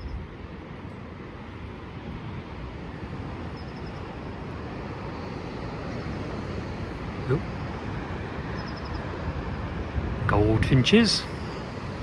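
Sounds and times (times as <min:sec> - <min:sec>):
steady outdoor rumble: 0:00.0 - 0:12.0
small bird chirping: 0:08.6 - 0:09.0.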